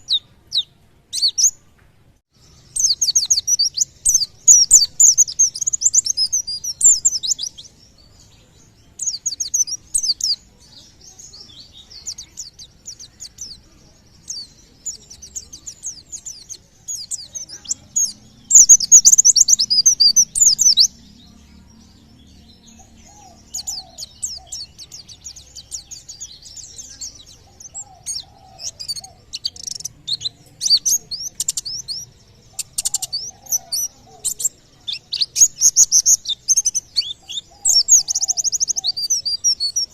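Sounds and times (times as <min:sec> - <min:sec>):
bird fast high chirping: 0:02.6 - 0:07.8, 0:11.4 - 0:21.2, 0:22.9 - 0:39.9.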